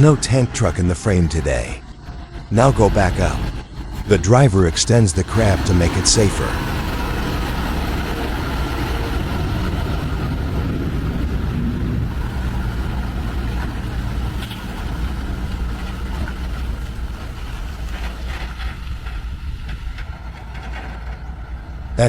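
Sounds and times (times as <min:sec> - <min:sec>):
truck diesel engine rumbling: 0:00.0 - 0:22.0.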